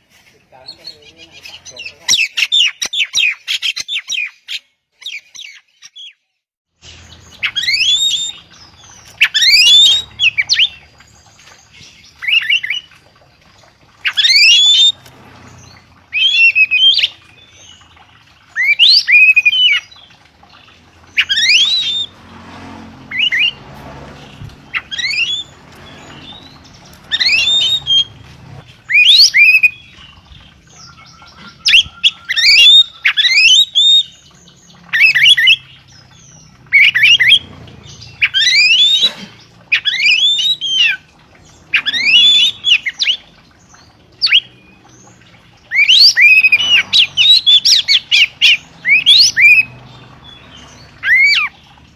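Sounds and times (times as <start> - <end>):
songbird whistled calls: 6.8 - 10.9, 14.0 - 15.0, 16.1 - 17.8, 18.5 - 19.9, 21.1 - 22.1, 24.7 - 28.2, 28.9 - 37.4, 38.0 - 39.1, 39.7 - 41.0, 41.7 - 43.2, 44.2 - 44.6, 45.7 - 49.8, 51.0 - 51.5.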